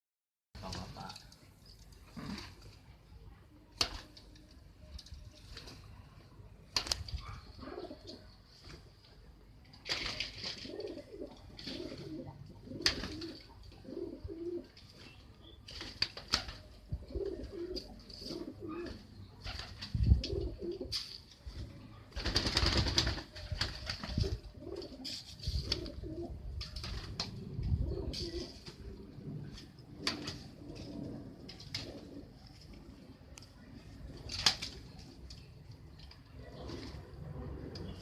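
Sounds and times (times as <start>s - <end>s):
pigeons cooing: 7.2s - 8.5s, 10.3s - 14.8s, 16.9s - 21.0s, 24.1s - 26.5s, 27.2s - 29.4s, 30.0s - 32.5s
wings flapping: 12.8s - 13.4s, 15.7s - 16.7s, 22.1s - 24.5s.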